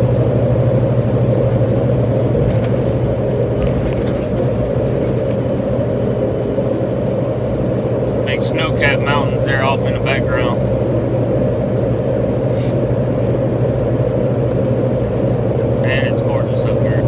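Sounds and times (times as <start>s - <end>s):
tyre and road noise: 0.0s - 11.0s
truck diesel engine drone: 0.0s - 17.0s.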